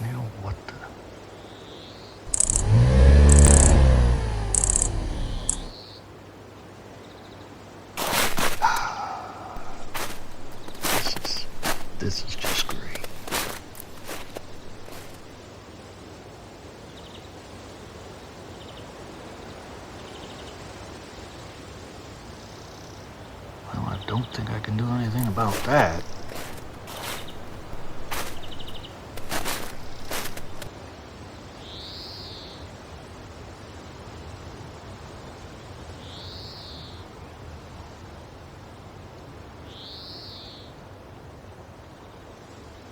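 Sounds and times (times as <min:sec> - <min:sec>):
steady wind hiss: 0:00.0 - 0:05.7, 0:07.6 - 0:29.2
crunch: 0:02.3 - 0:05.7, 0:08.0 - 0:15.3, 0:25.0 - 0:30.7
high rising and falling calls: 0:02.3 - 0:05.7, 0:24.8 - 0:30.7.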